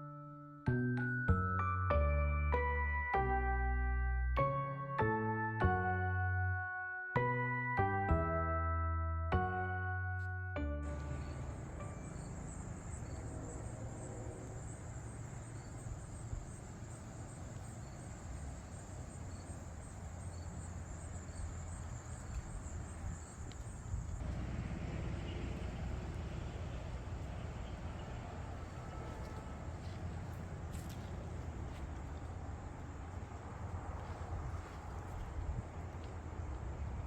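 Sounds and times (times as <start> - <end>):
pulsing insect trill: 10.9 - 30.2.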